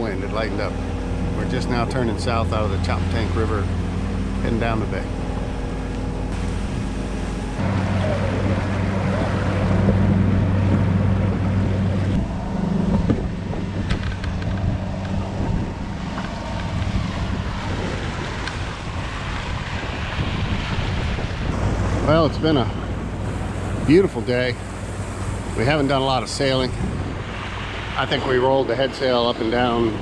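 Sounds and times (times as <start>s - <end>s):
boat engine droning: 0.0s - 30.0s
water rushing along hull: 0.0s - 30.0s
wind buffeting microphone: 0.0s - 30.0s.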